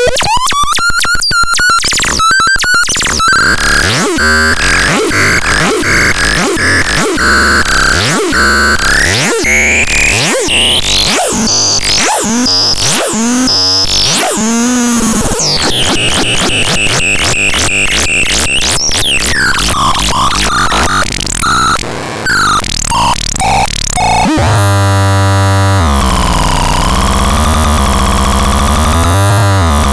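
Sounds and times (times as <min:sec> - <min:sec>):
synthesizer sweeping electronic tones: 0:11.0 - 0:29.9.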